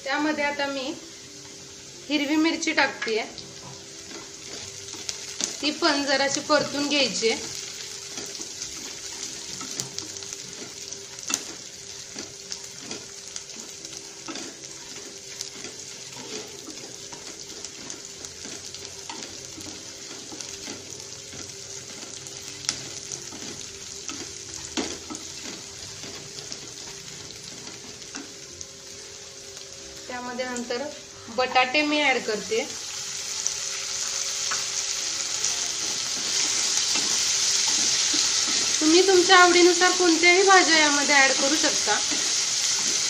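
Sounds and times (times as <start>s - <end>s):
onions sizzling in hot oil: 0.0s - 43.0s
wooden spatula scraping pan: 7.4s - 28.3s.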